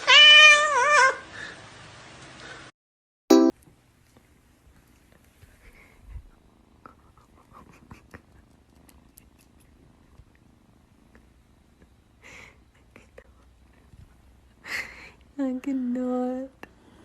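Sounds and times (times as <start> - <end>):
cat purring: 4.9 - 17.0.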